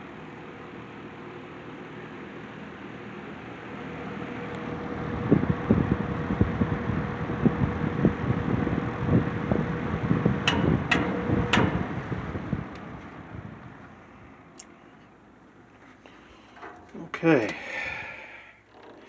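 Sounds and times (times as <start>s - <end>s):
box fan motor hum: 0.0s - 19.0s
airflow buffeting microphone: 3.7s - 14.5s.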